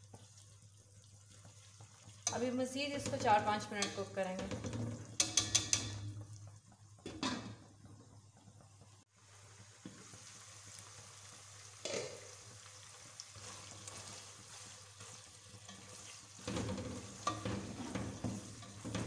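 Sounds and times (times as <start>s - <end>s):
chicken sizzling in oil: 0.0s - 19.0s
knock on a pot: 4.4s - 6.2s
spatula scraping a pot: 13.4s - 19.0s.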